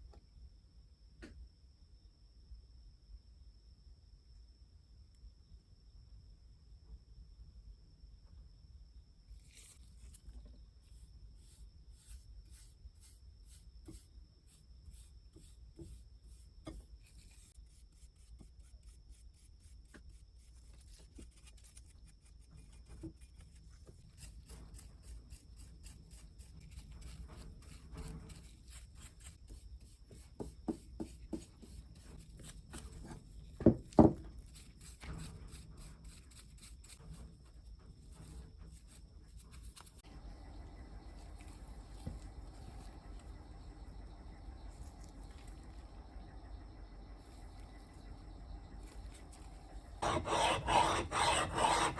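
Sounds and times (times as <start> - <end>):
rubbing and polishing axe head: 10.9 - 37.3, 48.8 - 51.9.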